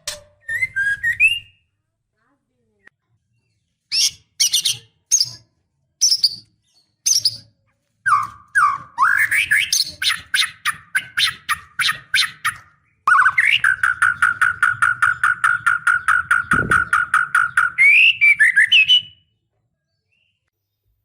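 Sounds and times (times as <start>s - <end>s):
bird harsh chattering calls: 8.1s - 19.2s.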